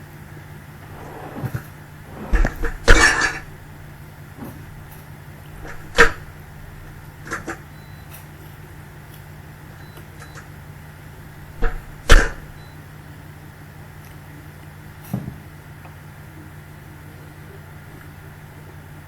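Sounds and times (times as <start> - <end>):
water spray splashing: 0.8 - 3.4.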